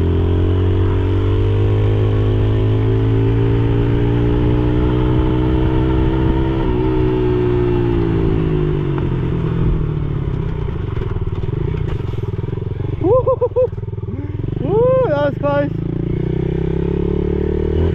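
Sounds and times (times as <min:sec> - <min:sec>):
dirt bike engine revving: 0:11.6 - 0:17.9.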